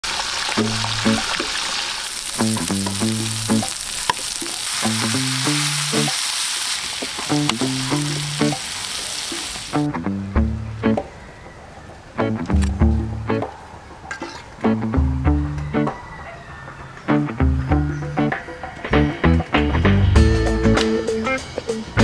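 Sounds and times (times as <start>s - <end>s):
food sizzling in hot oil: 0.0s - 9.9s
plucked melody: 7.3s - 8.6s, 9.7s - 11.1s, 17.1s - 22.0s.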